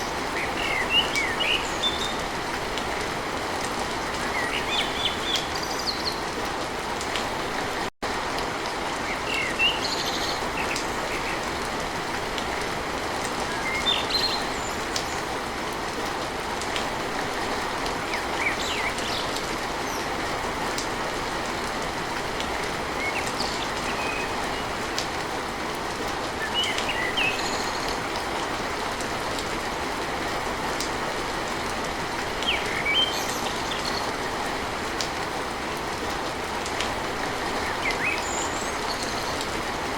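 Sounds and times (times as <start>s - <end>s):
heavy rain on a tin roof: 0.0s - 39.9s
birds chirping: 37.3s - 39.6s.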